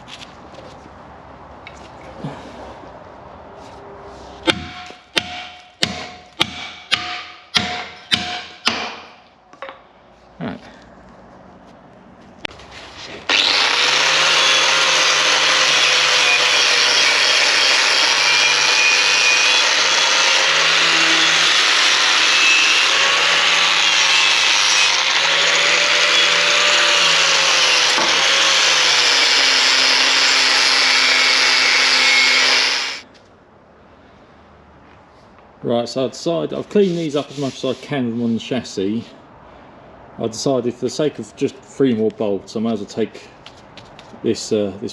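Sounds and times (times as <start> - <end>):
power tool abrading metal: 13.3 - 33.0.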